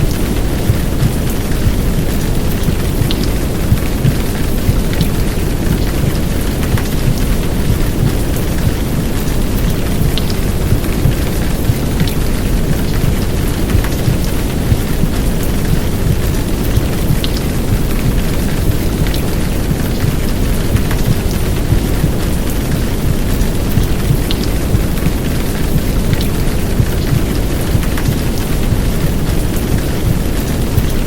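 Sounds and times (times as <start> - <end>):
heavy rain: 0.0 - 31.0.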